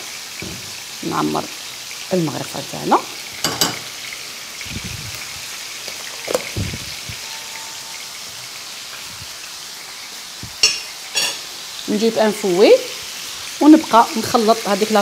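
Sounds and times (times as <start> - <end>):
chicken sizzling in frying pan: 0.0 - 15.0
spoon knocking cookware: 3.4 - 3.9.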